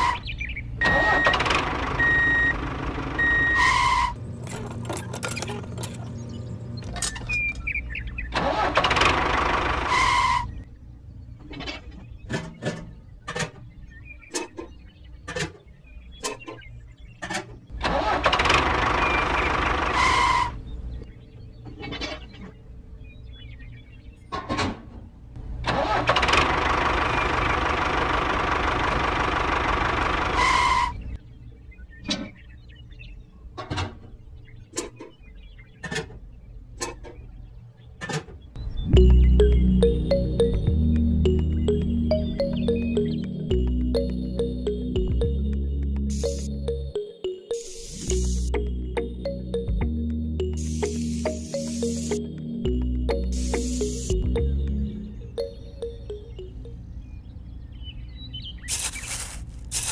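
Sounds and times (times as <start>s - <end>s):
engine noise bursts: 0.0s - 5.1s, 8.3s - 10.6s, 17.7s - 20.7s, 25.4s - 31.2s, 38.8s - 56.7s.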